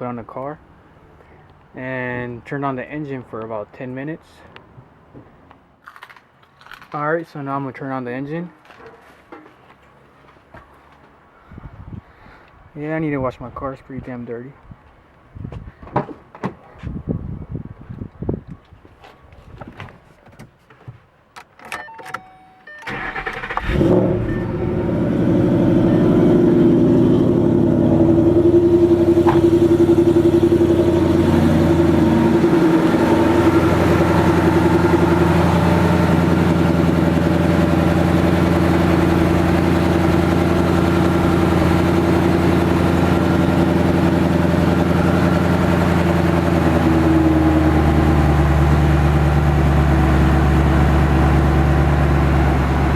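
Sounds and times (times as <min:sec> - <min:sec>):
car engine starting and idling: 0:22.2 - 0:52.9.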